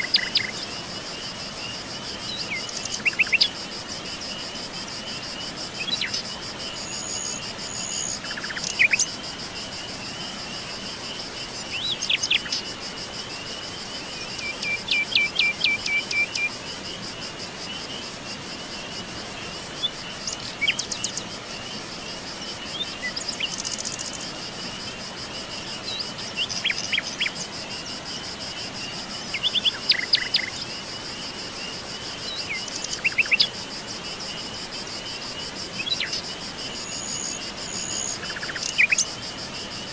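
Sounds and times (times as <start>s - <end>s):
wild birds chirping: 0.0s - 12.7s, 13.3s - 39.9s
insects trilling: 0.0s - 39.9s.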